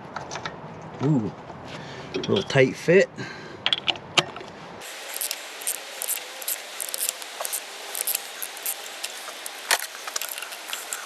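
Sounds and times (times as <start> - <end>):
hand tools scraping metal: 4.8 - 11.0.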